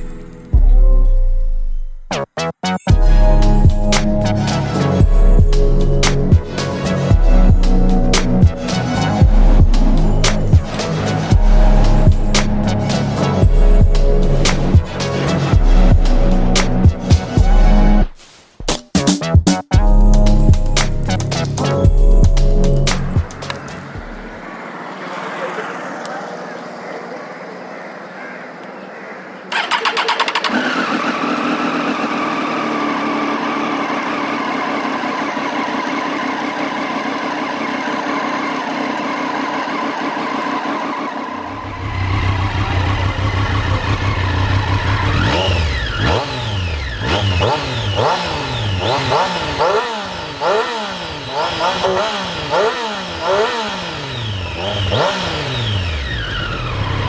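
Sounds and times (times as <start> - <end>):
motorcycle engine cranking: 29.5 - 57.0
motorcycle engine idling: 29.5 - 57.0.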